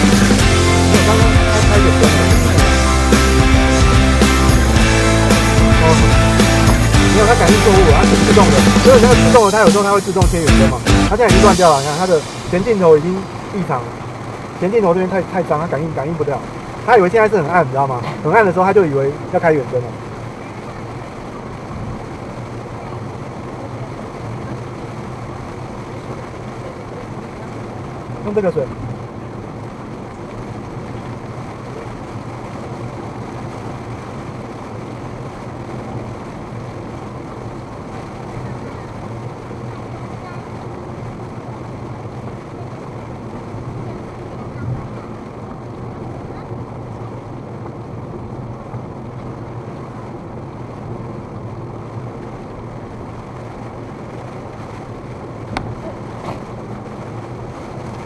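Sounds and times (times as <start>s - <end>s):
heavy rain on car: 0.0s - 58.0s
low engine and road hum: 0.0s - 58.0s
tyres on wet road: 0.0s - 58.0s.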